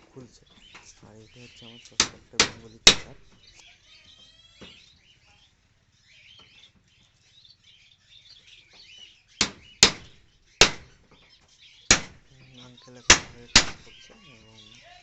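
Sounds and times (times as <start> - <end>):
finches chirping: 0.0 - 15.0
sharp knocks: 2.0 - 3.4, 9.4 - 11.2, 11.9 - 12.4, 13.1 - 14.1.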